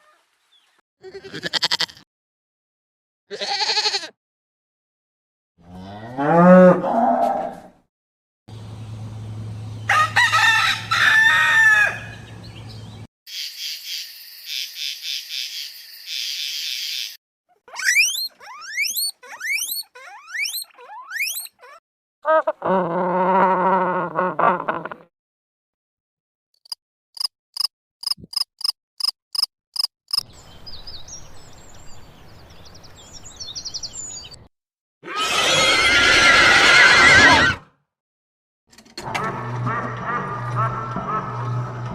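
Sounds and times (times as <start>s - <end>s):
cow mooing: 5.6s - 7.7s
rooster crowing: 9.9s - 12.2s
high twittering calls: 17.7s - 21.6s.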